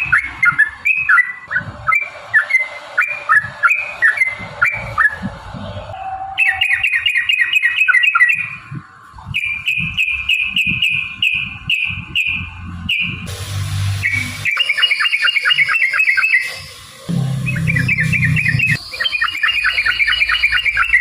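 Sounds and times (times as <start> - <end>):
bird chirping: 0.0 - 13.3, 14.0 - 21.0
low thumps: 17.1 - 18.8.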